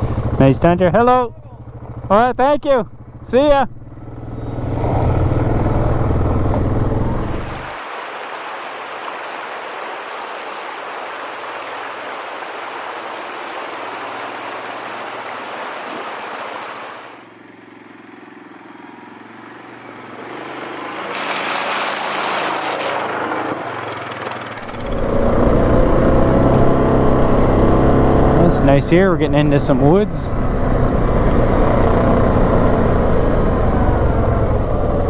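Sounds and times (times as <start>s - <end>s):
atv engine running: 0.0s - 7.8s, 11.4s - 35.0s
rushing water: 7.1s - 17.4s, 19.1s - 25.3s.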